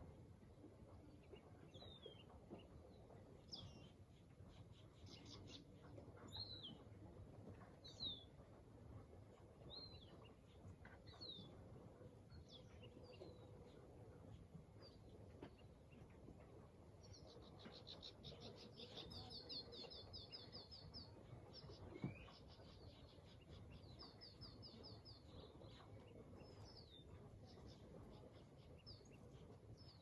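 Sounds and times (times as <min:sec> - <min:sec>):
bird chirping: 0:01.0 - 0:06.9, 0:17.0 - 0:30.0.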